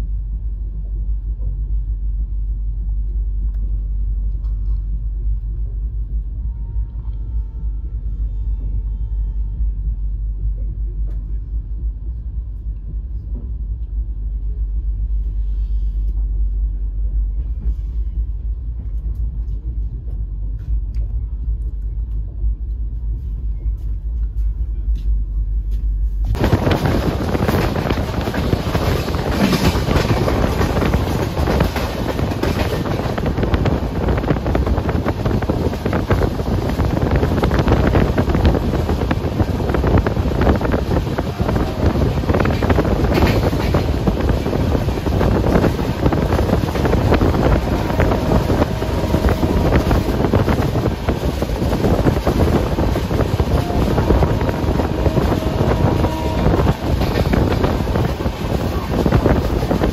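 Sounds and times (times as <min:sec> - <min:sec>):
train wheels rumbling on rail: 0:00.0 - 0:59.9
wind rushing over microphone: 0:26.2 - 0:59.9.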